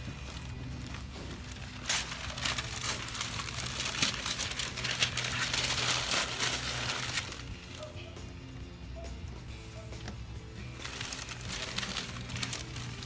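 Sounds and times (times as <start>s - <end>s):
newspaper crumpling: 0.0s - 8.1s, 10.6s - 13.0s
tape being peeled off: 0.9s - 8.0s, 10.7s - 13.0s.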